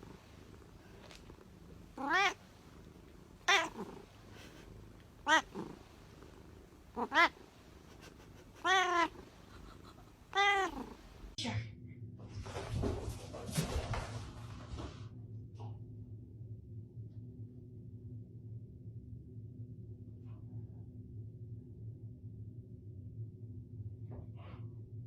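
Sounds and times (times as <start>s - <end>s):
cat meowing: 1.9s - 6.3s, 6.9s - 11.4s.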